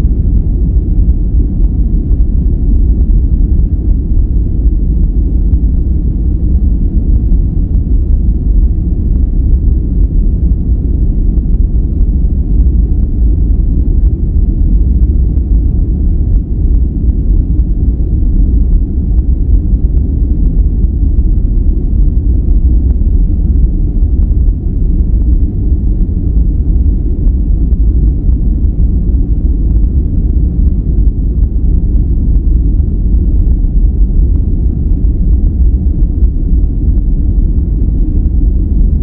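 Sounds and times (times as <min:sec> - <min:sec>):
deep low rumble noise: 0:00.0 - 0:39.0.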